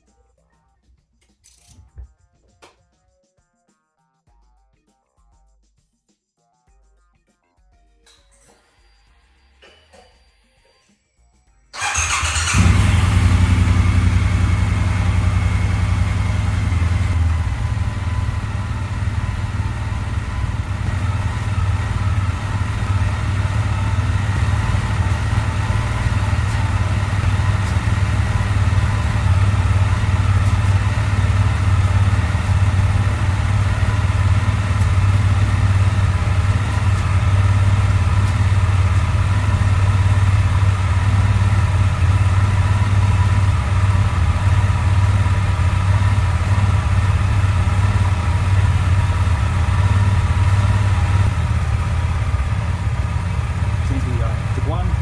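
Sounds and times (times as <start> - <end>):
motorcycle engine idling: 11.8 - 55.0.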